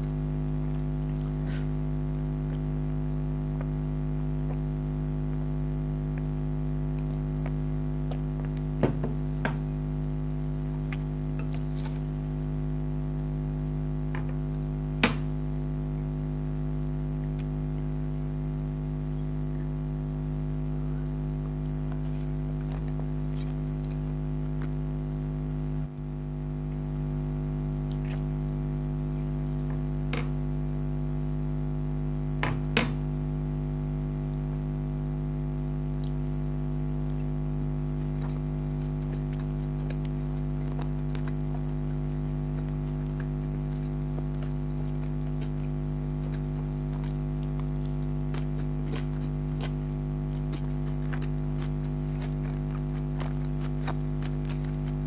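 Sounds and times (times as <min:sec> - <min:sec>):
steady low hum: 0:00.0 - 0:55.0
mouth and eating clicks: 0:06.1 - 0:06.3, 0:35.9 - 0:55.0.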